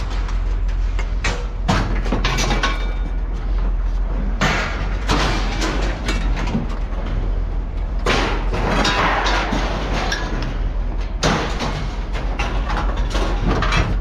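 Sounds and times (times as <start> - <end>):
steady low rumble: 0.0 - 14.0
scrap metal crashing onto pile: 1.2 - 3.2, 4.3 - 7.2, 8.0 - 14.0
metal clattering: 4.2 - 14.0.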